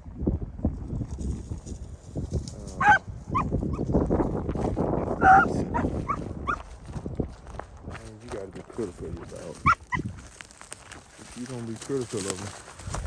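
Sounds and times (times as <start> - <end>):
wind rumble on microphone: 0.0 - 13.0
distant dog barking: 2.8 - 3.5, 5.2 - 6.6.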